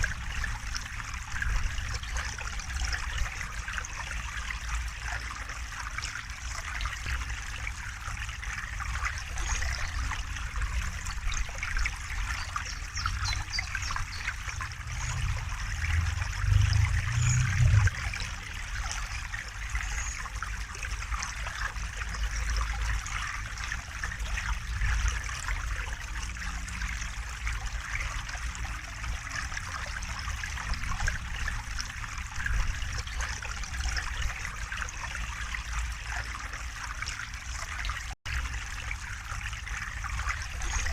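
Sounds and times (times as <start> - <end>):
river water flowing: 0.0 - 40.9
low rumble: 14.0 - 18.9.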